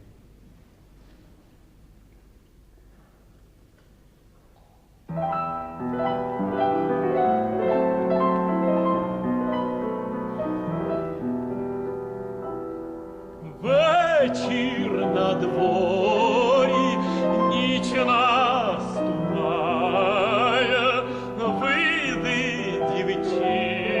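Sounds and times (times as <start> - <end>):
piano chords: 5.1 - 24.0
tenor voice singing with vibrato: 13.4 - 24.0.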